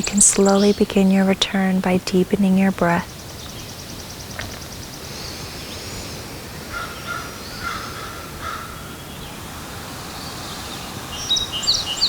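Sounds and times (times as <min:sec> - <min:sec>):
outdoor ambience hiss: 0:00.0 - 0:12.0
high bird whistle: 0:10.2 - 0:12.0
short repeated bird calls: 0:10.2 - 0:12.0.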